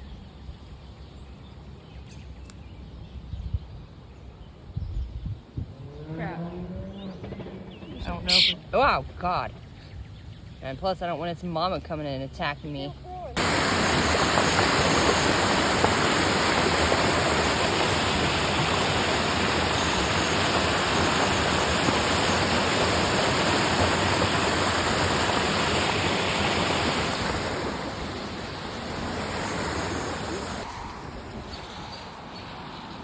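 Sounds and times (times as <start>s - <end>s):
flooded creek water rushing: 8.2s - 8.6s, 13.3s - 33.0s.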